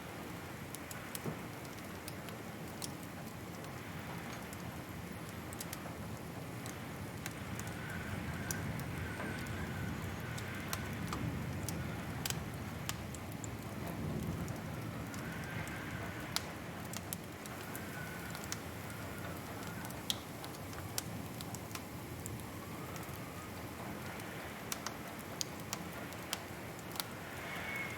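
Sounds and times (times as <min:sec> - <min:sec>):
wood fire crackling: 0:00.0 - 0:27.9.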